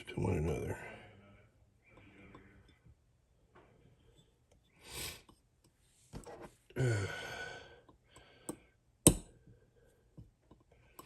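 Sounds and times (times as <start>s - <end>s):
man breathing and sighing: 6.7s - 8.8s
hammer tapping metal pin: 8.5s - 9.3s.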